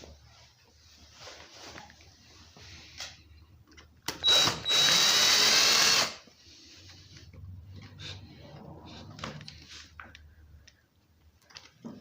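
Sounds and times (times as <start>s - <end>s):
power drill-driver whine: 4.1s - 6.2s.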